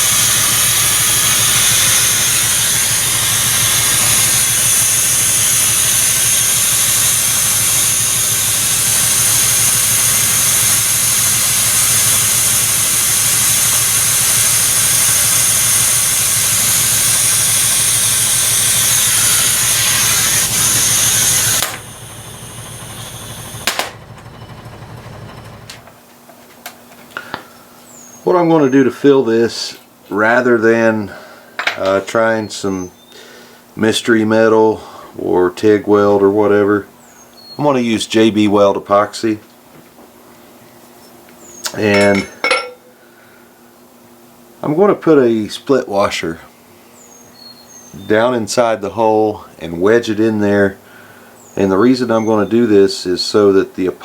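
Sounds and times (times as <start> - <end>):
shop machine hissing and humming: 0.0 - 26.0.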